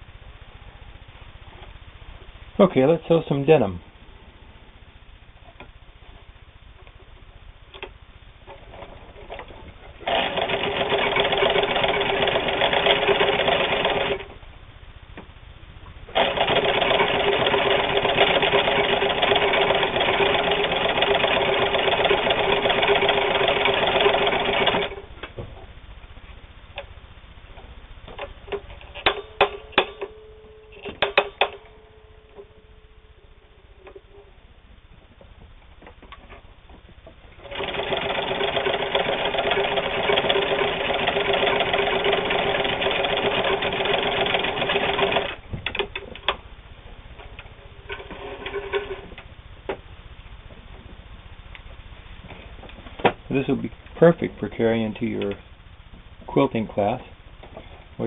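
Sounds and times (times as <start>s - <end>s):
sewing machine stitching: 8.5s - 14.3s, 16.1s - 25.0s, 37.4s - 46.3s, 47.9s - 49.2s.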